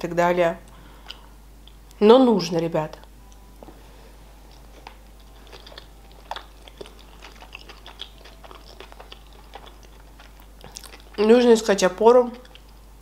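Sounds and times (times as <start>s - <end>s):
chewing food: 4.4s - 13.0s
wet mouth clicks: 5.2s - 11.2s.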